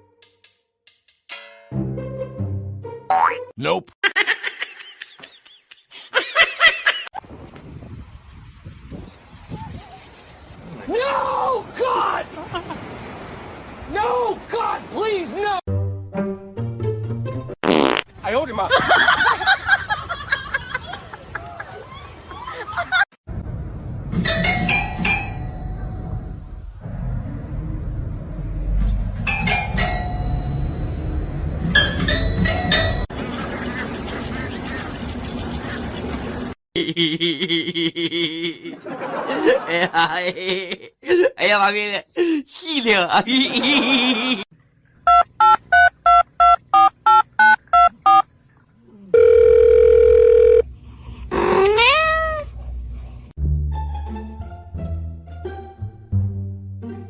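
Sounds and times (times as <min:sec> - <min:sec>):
music: 0:00.0 - 0:03.5, 0:15.7 - 0:17.6, 0:53.4 - 0:57.0
metallic bell dings: 0:29.3 - 0:31.2
telephone keypad beeps: 0:45.1 - 0:48.2
steady phone tone: 0:49.1 - 0:50.7.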